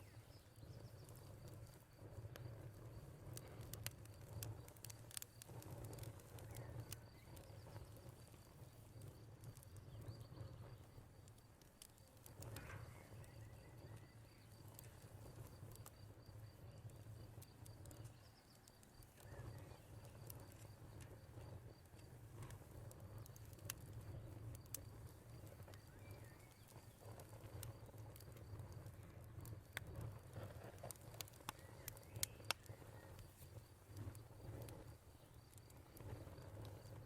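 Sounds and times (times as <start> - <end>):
low rumble of burning logs: 0.0 - 37.0
wood fire crackling: 0.0 - 37.0.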